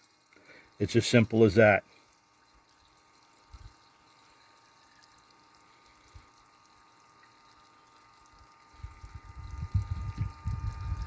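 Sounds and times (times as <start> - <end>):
fuel pump whine: 5.6 - 11.0.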